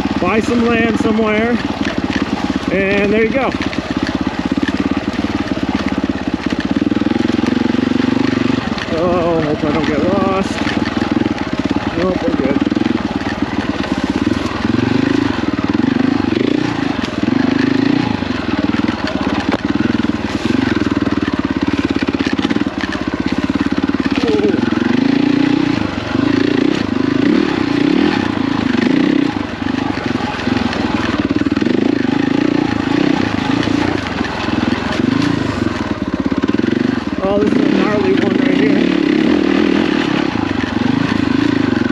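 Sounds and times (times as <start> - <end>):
motorcycle engine revving at low revs: 0.0 - 41.9.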